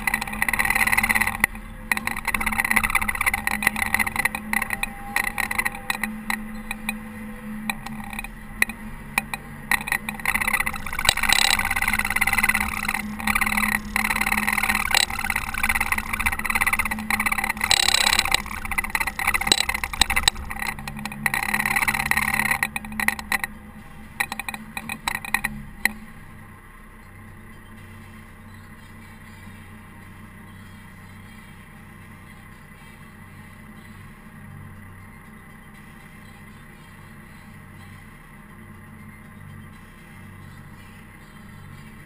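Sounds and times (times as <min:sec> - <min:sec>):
snow plow clattering and rattling: 0:00.0 - 0:26.0
engine humming: 0:00.0 - 0:42.0.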